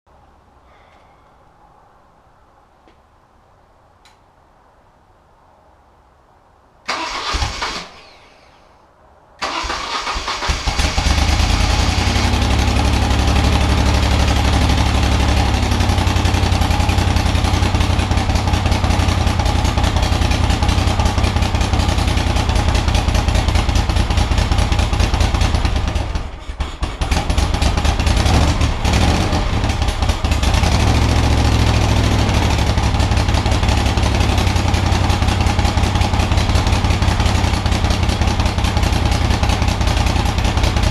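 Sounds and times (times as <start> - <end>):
motorcycle engine running: 10.7 - 40.9.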